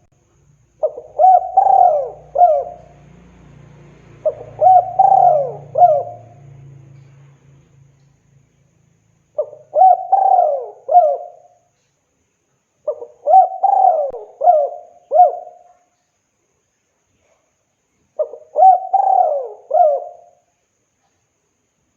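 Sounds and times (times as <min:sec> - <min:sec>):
dove cooing: 0:00.8 - 0:03.0, 0:04.2 - 0:06.5, 0:09.4 - 0:11.6, 0:12.8 - 0:15.8, 0:18.2 - 0:20.4.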